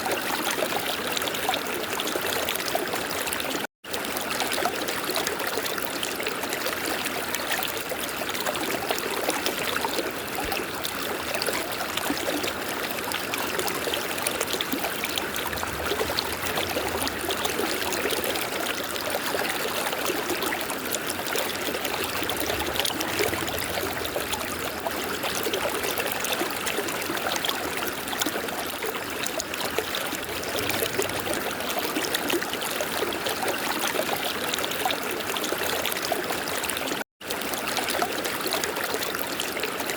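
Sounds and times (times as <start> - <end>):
small water splashes: 1.9 - 39.8
river water rushing: 13.2 - 27.2, 29.8 - 32.4.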